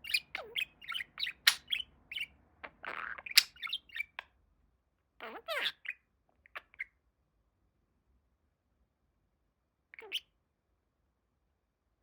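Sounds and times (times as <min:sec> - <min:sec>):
budgie chirping and squawking: 0:00.0 - 0:04.2, 0:05.2 - 0:07.0, 0:10.0 - 0:10.3.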